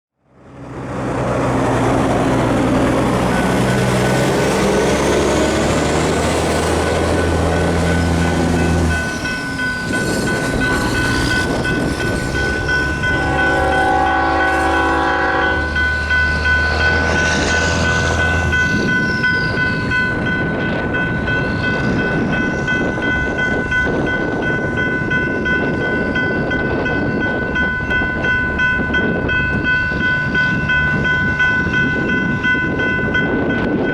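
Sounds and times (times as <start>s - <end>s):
rumble of engines and wheels: 0.2s - 33.9s
electronic crossing bells: 6.7s - 33.9s
locomotive horn blowing: 12.9s - 18.6s.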